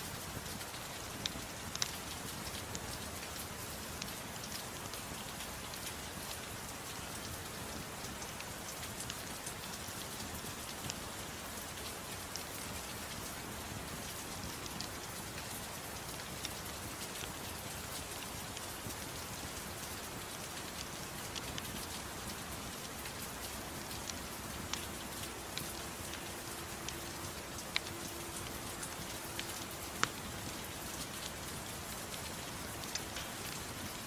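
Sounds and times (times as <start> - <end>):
soft steady rain: 0.0 - 34.0
wood fire crackling: 0.2 - 34.0.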